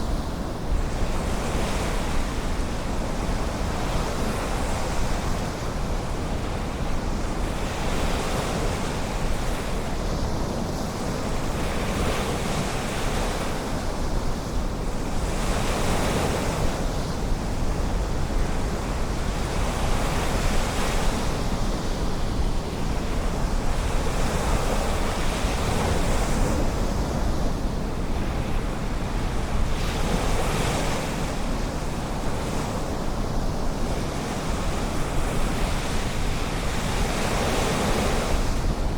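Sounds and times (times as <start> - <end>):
wind rumbling on microphone: 0.0 - 38.9.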